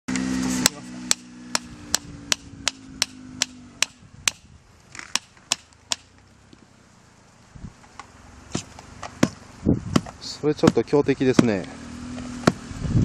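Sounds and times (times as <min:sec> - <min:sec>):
low hum: 0:00.1 - 0:10.0
sharp evenly spaced strikes: 0:00.5 - 0:04.5, 0:05.1 - 0:06.1.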